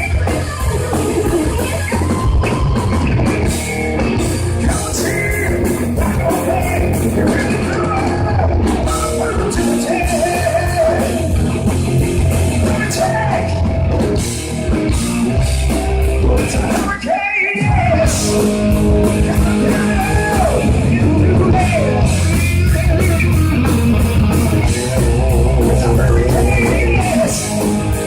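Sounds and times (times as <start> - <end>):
bass: 0.0 - 28.0
drums: 0.0 - 28.0
lead melody: 8.3 - 16.8, 18.1 - 28.0.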